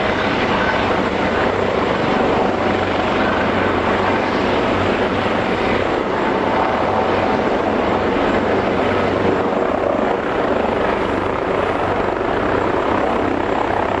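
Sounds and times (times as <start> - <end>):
helicopter rotor and turbine: 0.0 - 14.0.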